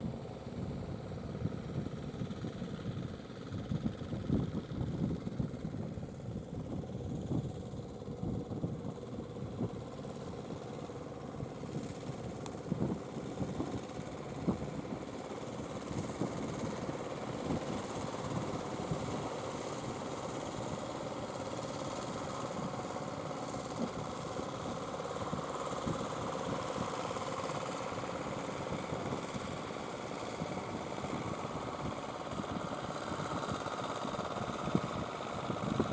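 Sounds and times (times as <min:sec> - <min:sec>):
boat engine humming: 0:07.8 - 0:30.1.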